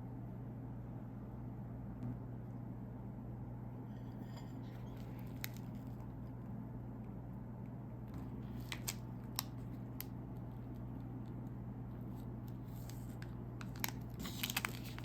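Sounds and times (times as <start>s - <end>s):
steady low hum: 0.0s - 15.0s
plastic wrapper crackling: 5.3s - 6.0s, 8.4s - 11.4s, 12.0s - 15.0s.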